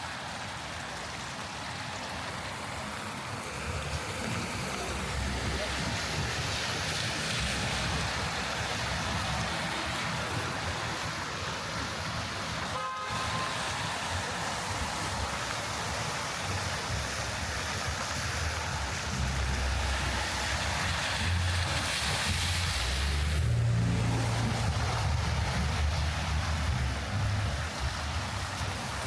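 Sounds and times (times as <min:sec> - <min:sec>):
rain hissing on street: 0:00.0 - 0:29.0
traffic: 0:00.0 - 0:29.0
vehicle low rumble: 0:02.4 - 0:12.7, 0:13.5 - 0:29.0
car horn toot: 0:12.7 - 0:13.9.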